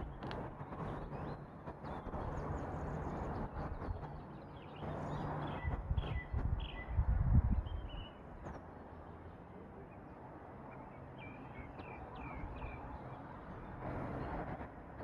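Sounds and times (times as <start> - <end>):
small birds chirping: 0.0 - 7.0, 7.6 - 8.6.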